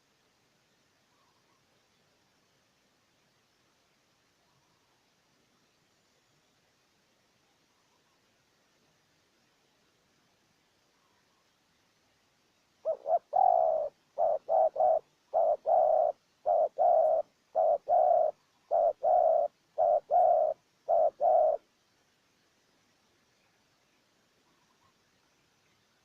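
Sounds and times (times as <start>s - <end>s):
dove cooing: 12.8s - 21.6s.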